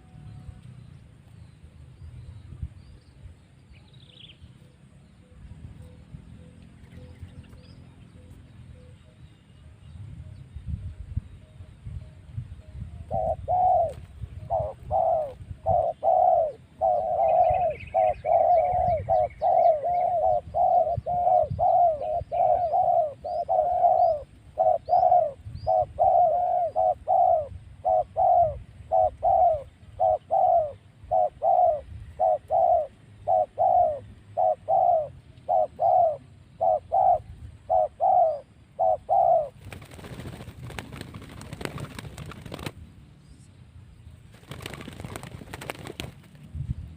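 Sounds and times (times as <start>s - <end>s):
dove cooing: 12.9s - 42.7s.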